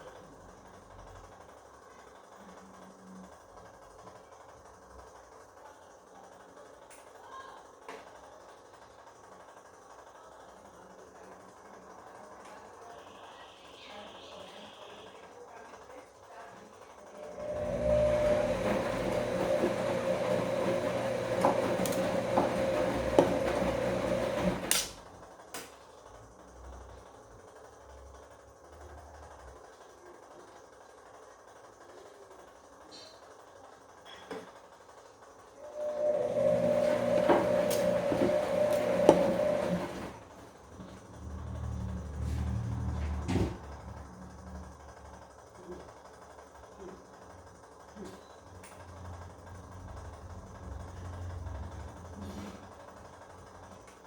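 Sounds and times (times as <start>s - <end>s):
washing machine motor whine: 8.7s - 25.4s, 34.8s - 54.0s.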